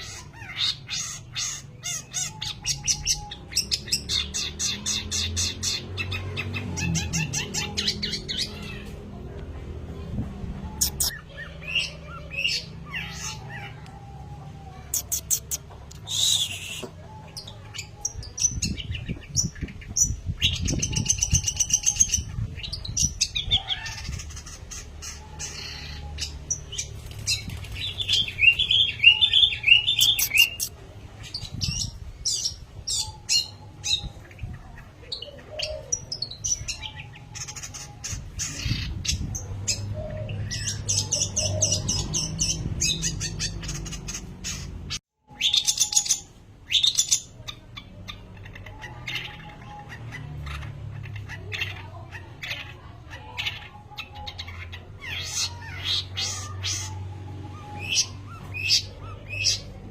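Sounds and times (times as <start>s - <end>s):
bird singing chattering song: 0.0s - 59.9s.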